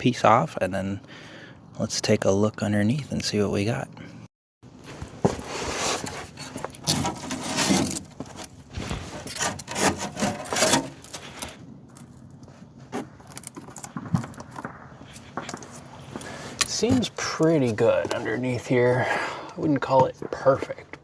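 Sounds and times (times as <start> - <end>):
panel scraping and rubbing: 5.4 - 11.6.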